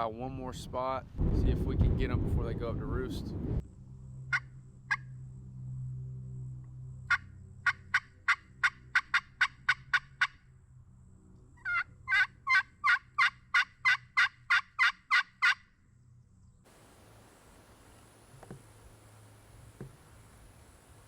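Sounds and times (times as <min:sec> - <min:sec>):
turkey yelps: 0:07.1 - 0:10.3, 0:11.6 - 0:15.6.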